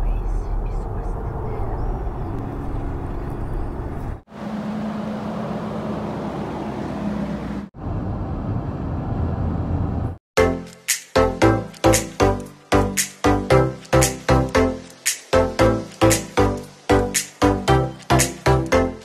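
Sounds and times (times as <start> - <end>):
car road and engine noise: 0.0 - 10.2.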